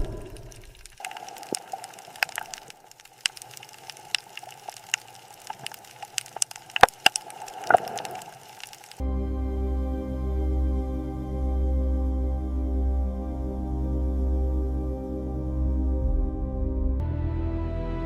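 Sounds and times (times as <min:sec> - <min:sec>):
loud cracks: 0:00.0 - 0:09.0
sharp clicks and crackles: 0:00.0 - 0:09.0
ambient music chord: 0:09.0 - 0:18.0.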